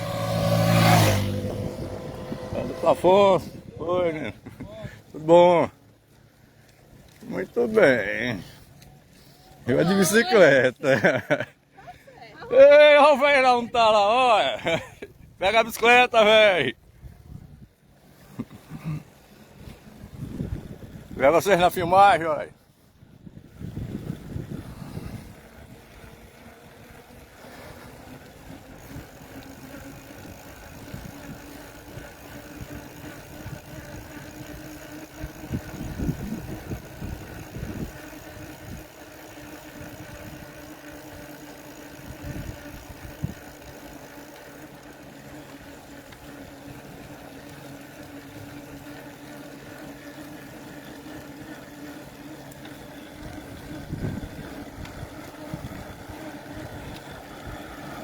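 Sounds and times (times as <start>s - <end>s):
low rumbles: 0.0s - 4.1s
vehicle engine humming: 0.0s - 10.6s, 23.8s - 58.0s.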